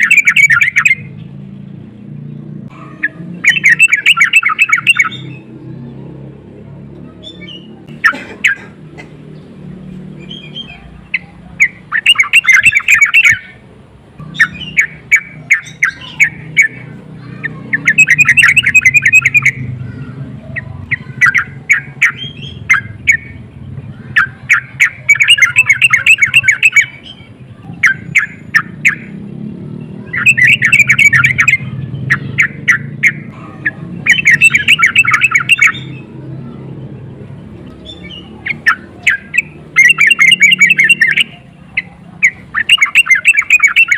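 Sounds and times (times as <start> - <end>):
bird chattering calls: 0.0 - 1.3, 2.6 - 5.6, 7.1 - 43.9.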